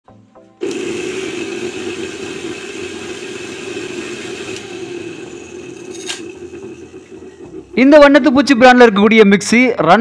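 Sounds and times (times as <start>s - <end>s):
mixer grinder motor running: 0.6s - 9.0s.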